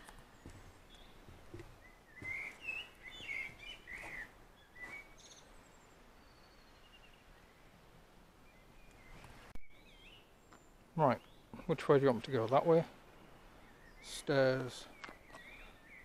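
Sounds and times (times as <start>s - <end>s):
faint distant bird calls: 0.0s - 16.0s
songbird chirping: 0.0s - 16.0s.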